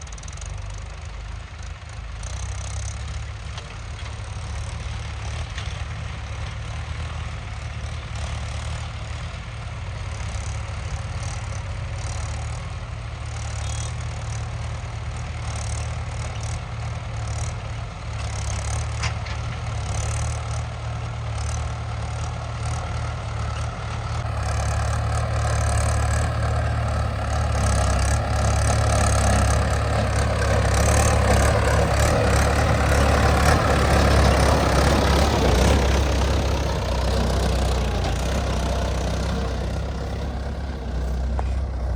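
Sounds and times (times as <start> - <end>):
heavy diesel engine running: 17.1 - 41.9.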